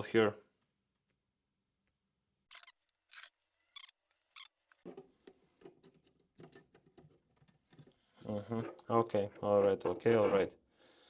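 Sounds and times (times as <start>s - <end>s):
scratchy handling of parts: 2.5s - 8.8s.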